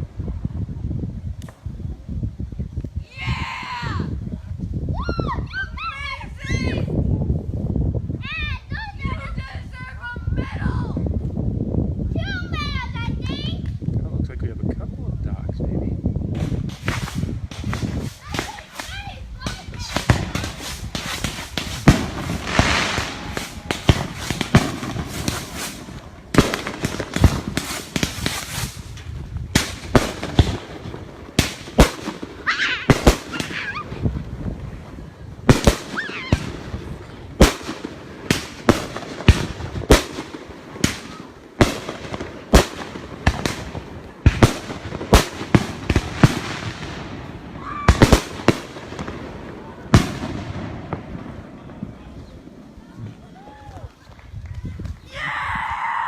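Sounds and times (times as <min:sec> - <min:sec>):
fireworks crackling: 0:00.0 - 0:04.3, 0:15.2 - 0:56.0
fireworks bangs and booms: 0:15.2 - 0:55.0.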